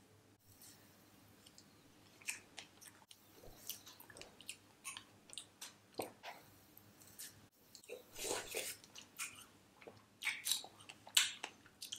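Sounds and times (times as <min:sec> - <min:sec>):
chewing frozen strawberries: 0:02.2 - 0:06.3, 0:07.8 - 0:11.9.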